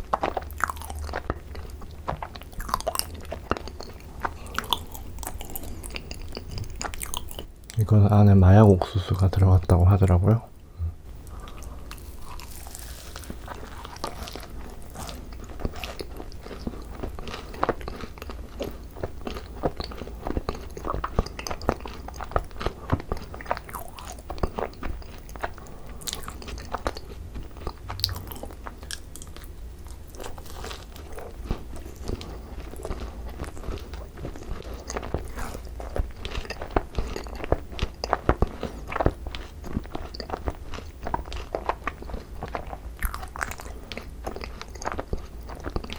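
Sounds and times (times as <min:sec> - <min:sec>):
crisp chewing crunches: 0:00.0 - 0:08.0, 0:11.1 - 0:45.9
mouth sounds: 0:07.7 - 0:11.5.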